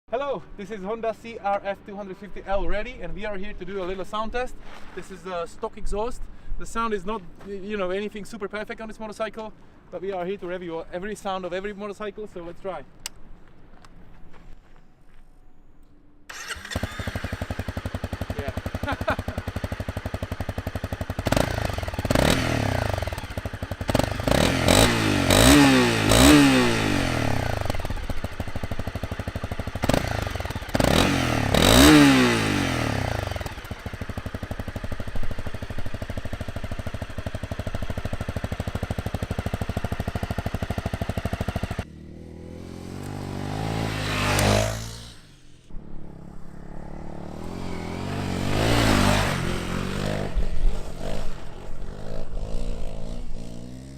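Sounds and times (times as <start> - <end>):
motorcycle engine idling: 16.3 - 25.5, 27.6 - 43.0
motorcycle riding past: 16.3 - 53.9.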